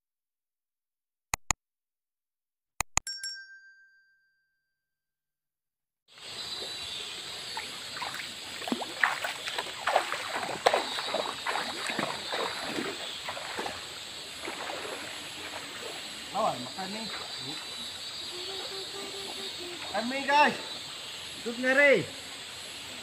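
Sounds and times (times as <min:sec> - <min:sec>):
river water running over stones: 0:06.4 - 0:18.2
person wading through water: 0:07.4 - 0:19.9.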